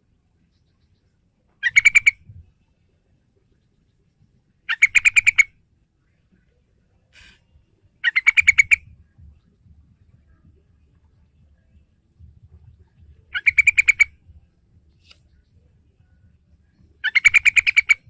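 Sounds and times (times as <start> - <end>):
bird chattering: 1.6 - 2.3, 4.7 - 5.5, 8.0 - 8.9, 12.8 - 14.2, 16.8 - 18.0.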